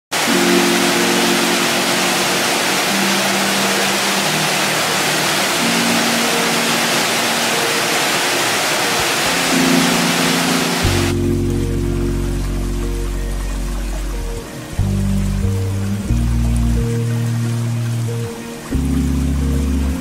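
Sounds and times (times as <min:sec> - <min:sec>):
waterfall rushing: 0:00.1 - 0:20.0
soft music of low notes: 0:00.2 - 0:20.0.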